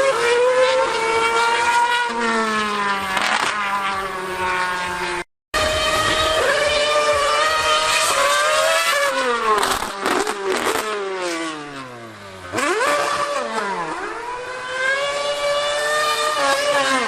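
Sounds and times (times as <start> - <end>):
racing car engine revving: 0.0 - 17.0.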